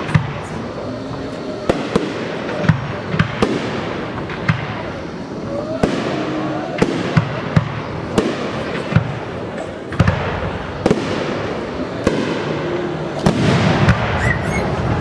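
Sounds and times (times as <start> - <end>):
crackle of bursting fireworks: 0.0 - 15.0
firework bangs: 0.0 - 15.0.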